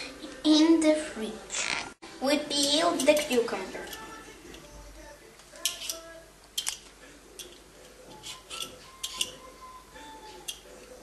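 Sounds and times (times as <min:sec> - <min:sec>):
utensils scraping and clinking: 0:02.6 - 0:04.8, 0:05.5 - 0:11.0.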